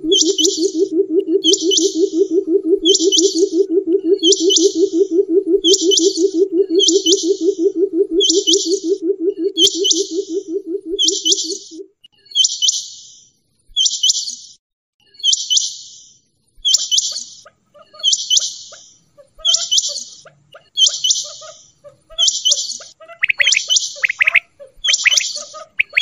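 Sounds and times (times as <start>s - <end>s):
quail calling: 0.0s - 11.8s, 17.4s - 26.0s
faint lower chirps: 0.0s - 12.6s.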